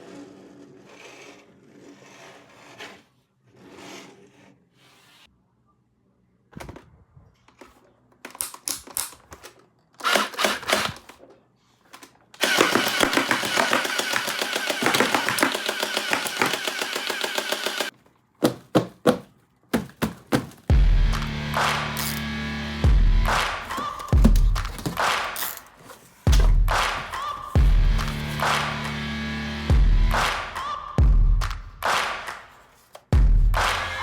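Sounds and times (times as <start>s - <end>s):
plastic clicks: 7.4s - 12.5s
toy gun rattling burst: 10.0s - 11.1s, 12.4s - 17.9s
rustling of handling: 23.6s - 28.4s.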